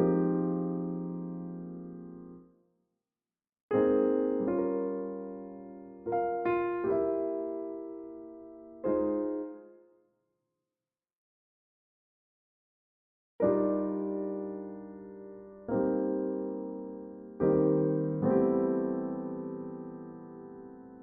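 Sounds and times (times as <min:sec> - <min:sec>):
slow jazz piano chords: 0:00.0 - 0:02.4, 0:03.7 - 0:09.6, 0:13.4 - 0:21.0.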